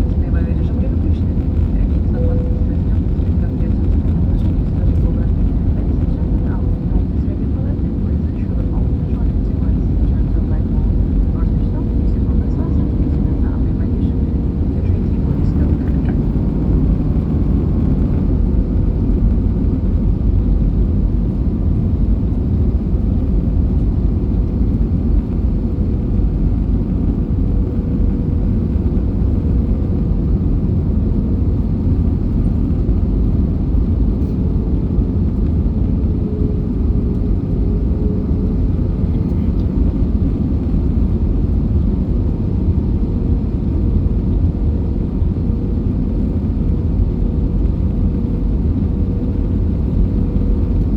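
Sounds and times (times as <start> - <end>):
faint steady hum: 0.0 - 41.7
airliner engine rumble: 0.0 - 50.9.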